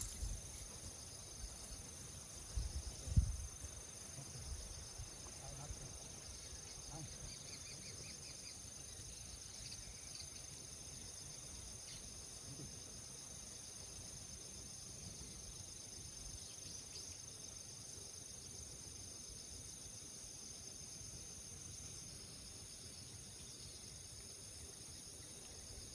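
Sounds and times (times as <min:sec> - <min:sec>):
crickets and insects trilling: 0:00.0 - 0:25.9.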